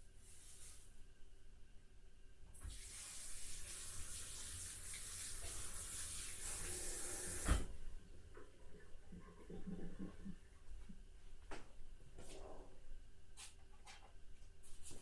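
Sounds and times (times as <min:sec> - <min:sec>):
water running from tap: 0:02.6 - 0:07.6.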